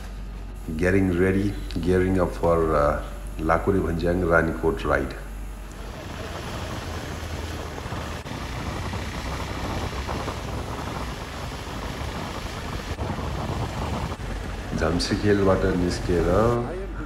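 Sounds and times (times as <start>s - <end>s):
motorcycle engine and road noise: 5.7s - 16.8s.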